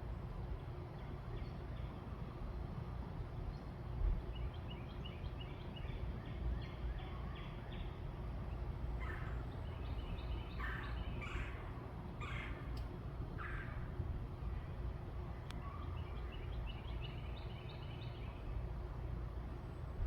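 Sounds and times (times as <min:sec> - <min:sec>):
steady low rumble: 0:00.0 - 0:20.0
birds chirping: 0:03.5 - 0:14.0, 0:15.4 - 0:18.7.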